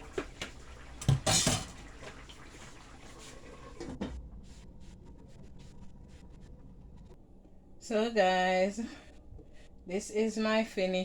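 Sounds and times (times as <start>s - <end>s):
utensils clattering against dishes: 1.0s - 1.8s.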